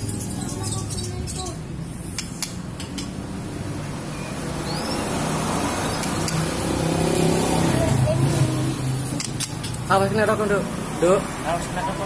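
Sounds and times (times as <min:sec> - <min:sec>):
faint chirp: 0:00.0 - 0:01.6
sharp clicks: 0:06.0 - 0:06.5.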